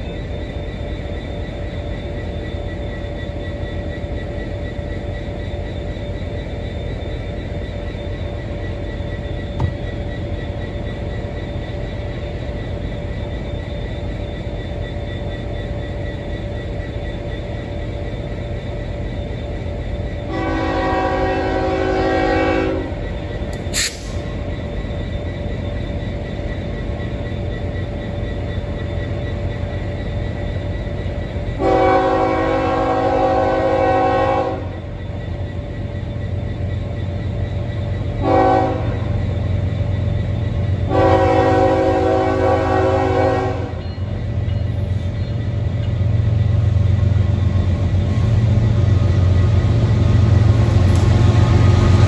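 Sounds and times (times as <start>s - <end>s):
train rumbling: 0.0s - 52.0s
locomotive air horn chord: 20.3s - 23.0s, 31.6s - 34.8s, 38.2s - 39.2s, 40.9s - 43.8s.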